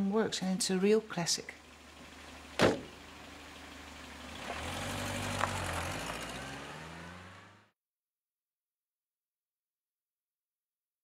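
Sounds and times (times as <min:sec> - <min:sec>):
car engine accelerating: 0:01.6 - 0:07.8.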